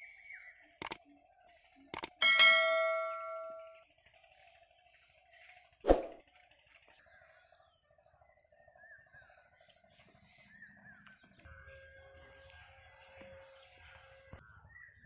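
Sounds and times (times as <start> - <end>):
birds chirping: 0.0 - 6.5
pulsing bird trill: 2.0 - 3.8.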